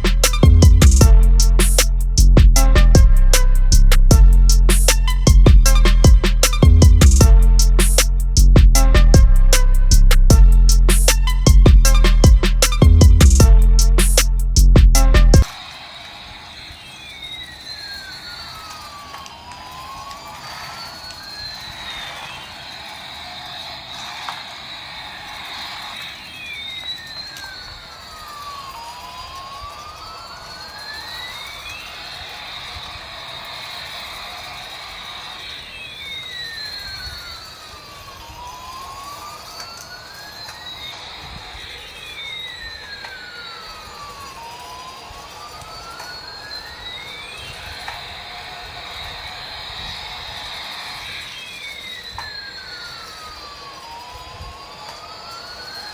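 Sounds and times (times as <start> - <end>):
gliding synthetic toy tones: 0.0 - 55.9
siren wailing: 0.0 - 55.9
steady hiss: 15.4 - 55.9.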